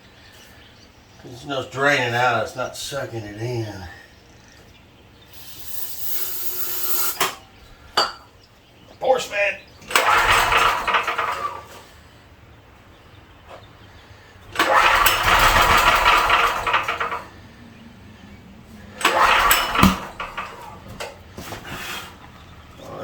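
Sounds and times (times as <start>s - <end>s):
generator engine firing and dying: 9.7s - 23.0s.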